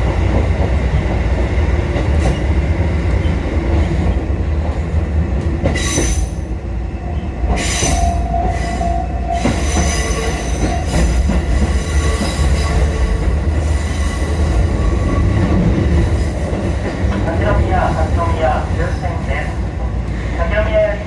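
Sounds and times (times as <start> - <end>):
electric train rumbling on rails: 0.0 - 21.0
train wheels squealing: 5.8 - 6.4, 7.1 - 15.5.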